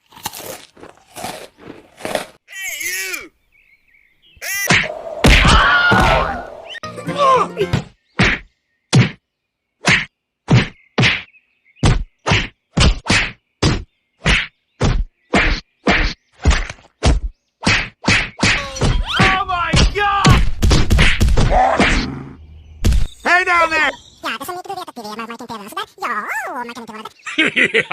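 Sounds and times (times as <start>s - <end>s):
sharp whacks or knocks: 4.7s - 6.4s, 8.2s - 9.2s, 9.8s - 22.1s.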